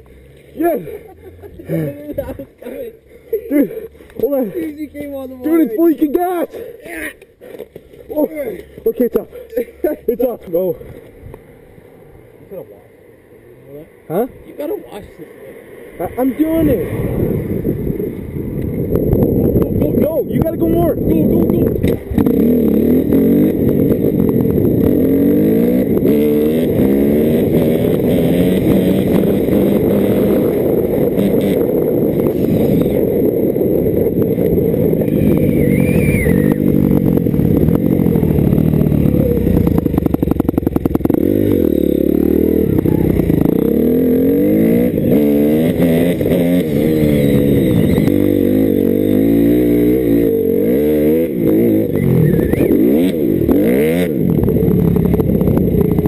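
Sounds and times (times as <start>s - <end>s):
dirt bike engine revving: 16.1s - 56.0s.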